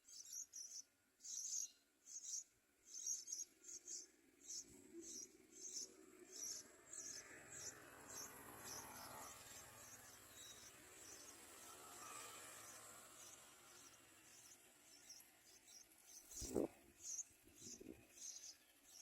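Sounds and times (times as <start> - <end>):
faint high-pitched chirping: 0.0 - 19.0.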